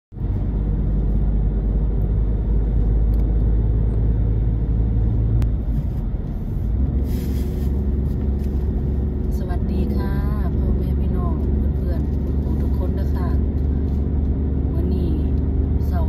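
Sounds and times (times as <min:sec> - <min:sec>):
car engine and tyres rumbling: 0:00.1 - 0:16.0.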